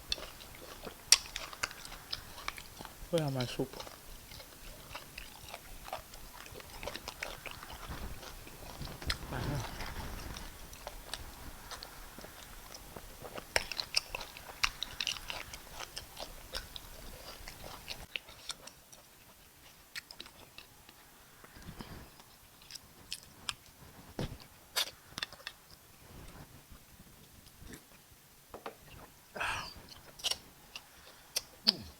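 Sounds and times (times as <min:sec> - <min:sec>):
person chewing food: 0:00.0 - 0:31.9
mouth clicks: 0:31.4 - 0:31.9.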